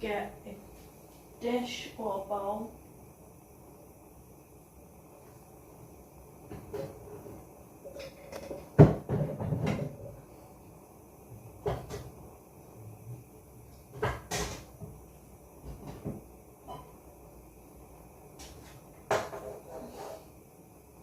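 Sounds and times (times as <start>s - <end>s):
cupboard door knocks and clatter: 8.8s - 10.0s.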